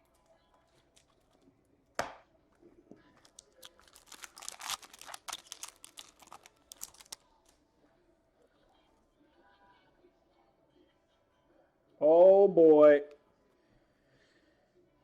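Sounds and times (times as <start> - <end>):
packaging crinkling and tearing: 3.2 - 7.2.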